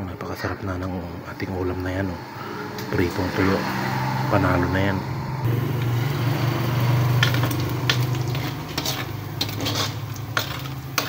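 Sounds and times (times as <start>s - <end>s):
meat sizzling in fat: 5.5s - 11.0s
metal ladle scraping a wok: 5.8s - 11.0s.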